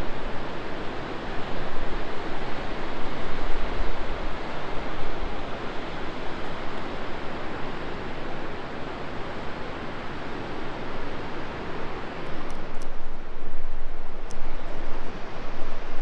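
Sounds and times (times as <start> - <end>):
river rushing through rapids: 0.0 - 16.0
wind rumbling on microphone: 12.3 - 16.0.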